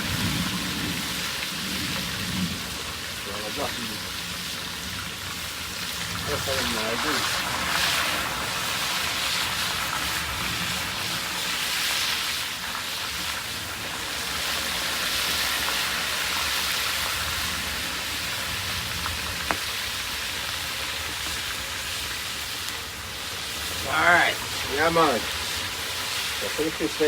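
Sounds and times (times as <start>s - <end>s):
fish sizzling in hot oil: 0.0s - 27.0s
sharp oil pop: 19.4s - 19.8s.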